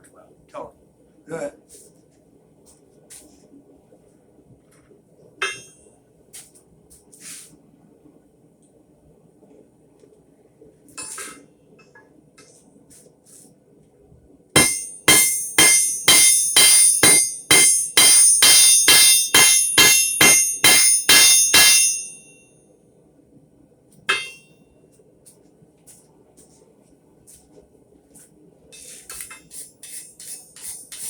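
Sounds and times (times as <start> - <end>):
hammer ringing on an anvil: 5.4 - 5.8, 14.6 - 22.4, 24.1 - 24.5.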